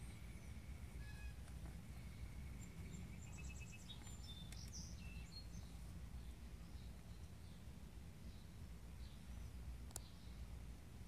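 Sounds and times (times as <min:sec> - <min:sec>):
faint high bird chirps: 0:00.0 - 0:07.6
low steady rumble: 0:00.0 - 0:11.0.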